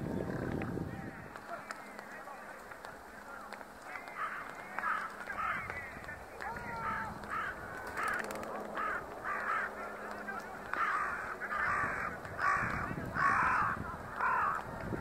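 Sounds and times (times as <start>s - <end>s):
bird harsh calls: 3.8s - 14.7s.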